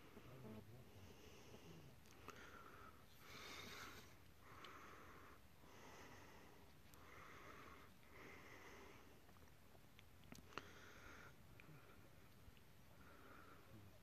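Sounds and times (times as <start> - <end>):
heavy breathing: 0.0 - 9.2, 10.5 - 12.2, 12.9 - 14.0.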